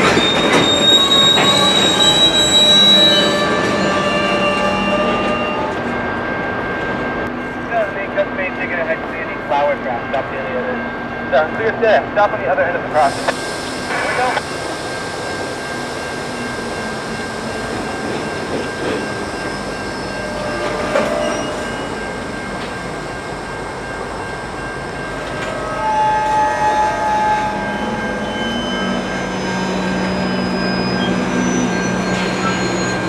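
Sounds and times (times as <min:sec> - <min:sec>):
train wheels squealing on rails: 0:00.0 - 0:07.8, 0:09.5 - 0:33.0
freight train rolling: 0:00.0 - 0:33.0
steady high tone: 0:00.0 - 0:33.0.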